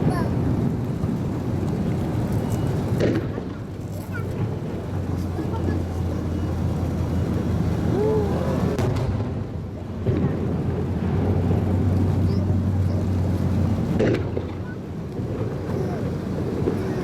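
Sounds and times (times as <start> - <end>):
wind buffeting microphone: 0.0 - 17.0
fireworks booming: 2.8 - 6.8, 7.9 - 17.0.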